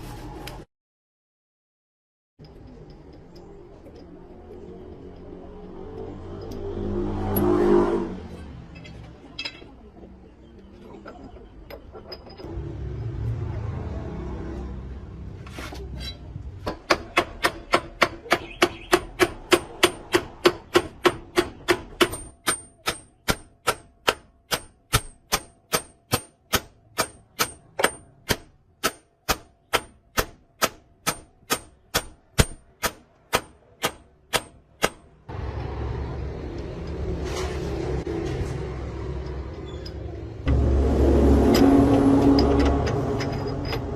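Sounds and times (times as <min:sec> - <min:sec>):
hammer striking metal: 0:16.6 - 0:35.2.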